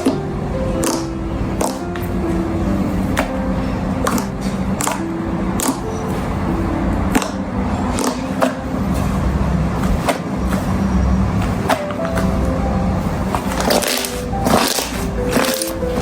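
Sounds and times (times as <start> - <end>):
soft background music: 0.0 - 16.0
slime squished by hand: 9.8 - 16.0.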